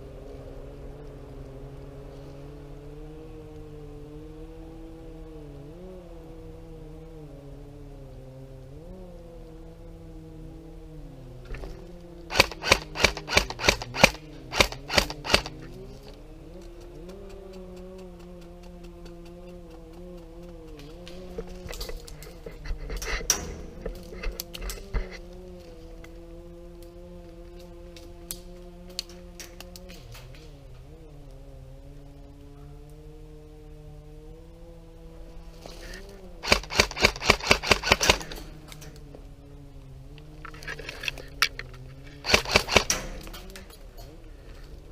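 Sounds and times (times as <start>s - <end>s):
faint steady hum: 0.0s - 44.9s
airsoft gun shots: 12.3s - 15.6s, 36.4s - 38.5s, 42.2s - 43.6s.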